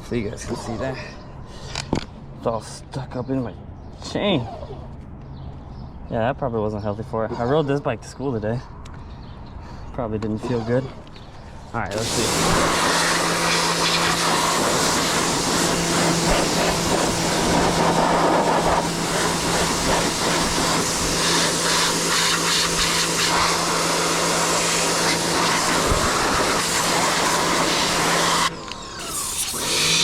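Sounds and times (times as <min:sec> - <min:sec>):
pressure washer hissing: 0:11.9 - 0:30.0.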